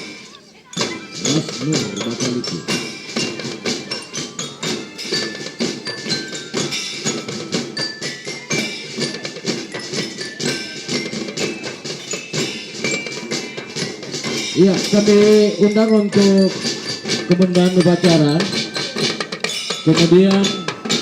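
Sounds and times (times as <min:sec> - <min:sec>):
mallet bells melody: 0:00.0 - 0:21.0
marching drums: 0:00.0 - 0:21.0.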